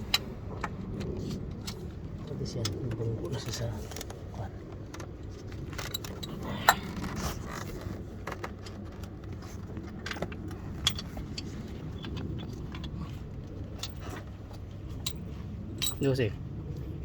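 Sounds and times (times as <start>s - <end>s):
steady low rumble: 0.0s - 17.0s
metal tools clinking: 10.5s - 16.2s.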